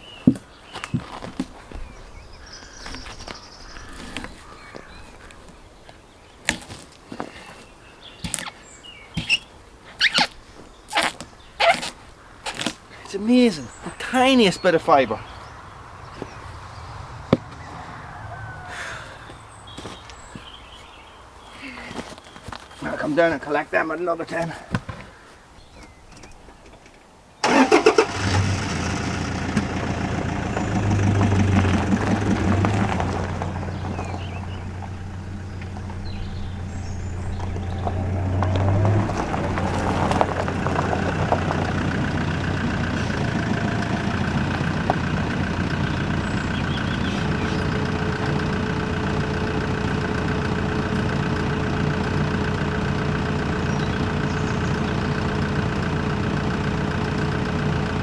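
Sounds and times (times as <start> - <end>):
vehicle engine starting and running: 13.4 - 21.4, 27.4 - 58.0.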